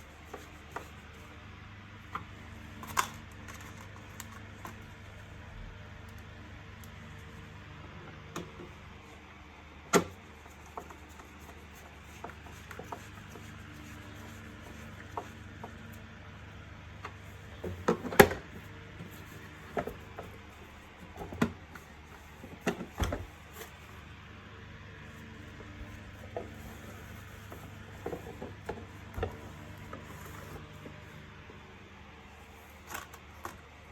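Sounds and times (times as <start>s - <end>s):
low steady hum: 0.0s - 33.9s.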